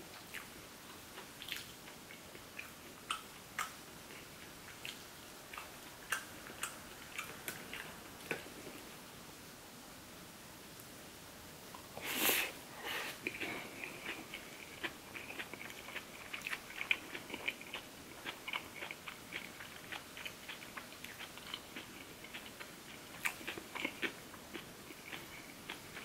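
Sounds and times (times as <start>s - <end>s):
chewing clicks: 13.3s - 26.0s.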